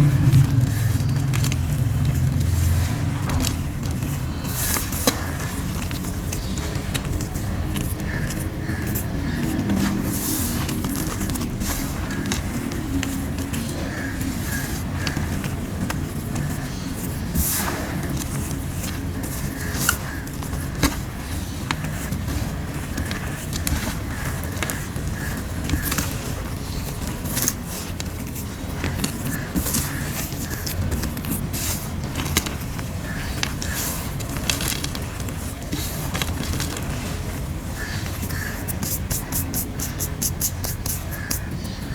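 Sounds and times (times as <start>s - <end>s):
steady low rumble: 0.0s - 6.2s
fingers crackling chalk powder: 0.0s - 41.9s.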